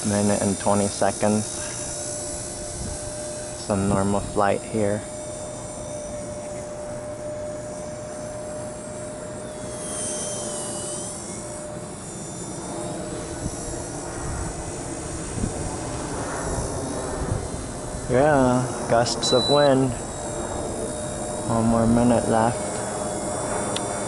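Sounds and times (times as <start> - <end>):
rc helicopter rotor whine: 0.0 - 24.0
wind rumble on microphone: 1.5 - 7.6, 13.1 - 24.0.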